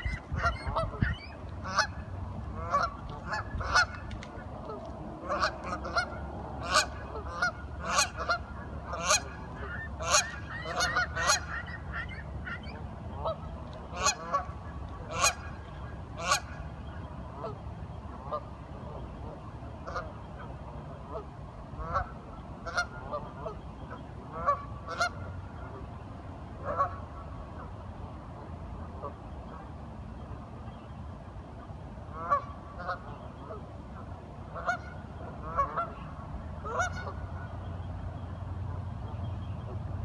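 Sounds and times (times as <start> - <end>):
ducks or geese calling: 0.0 - 17.6, 21.1 - 25.9, 26.6 - 27.7, 32.1 - 33.6, 34.5 - 37.6.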